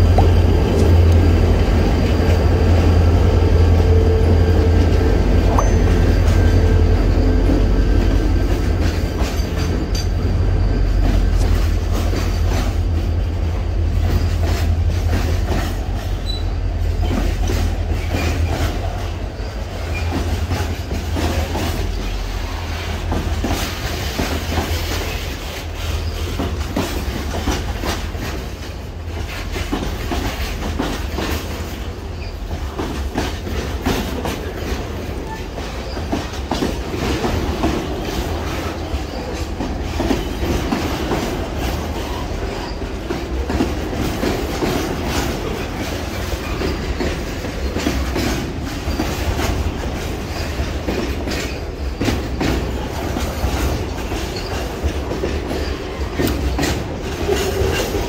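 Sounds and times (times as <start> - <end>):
wheels clicking over rail joints: 8.0 - 10.4, 23.0 - 58.0
wheel squeal: 16.2 - 16.6.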